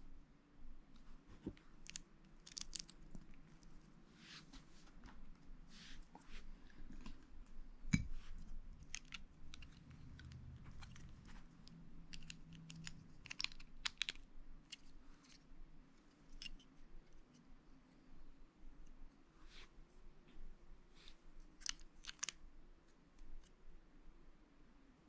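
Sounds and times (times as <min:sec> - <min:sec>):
plastic bricks clicking together: 0:12.1 - 0:14.2.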